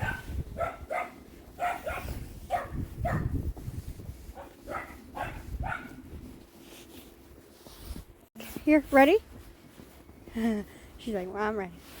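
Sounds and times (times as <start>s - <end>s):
dog barking in high yips: 0.0s - 3.3s, 4.4s - 6.0s.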